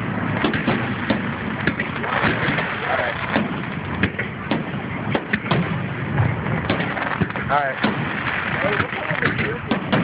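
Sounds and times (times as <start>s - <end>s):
murmur of voices: 0.0s - 10.0s
sharp pops and knocks: 0.4s - 2.7s, 3.3s - 5.7s, 8.7s - 10.0s.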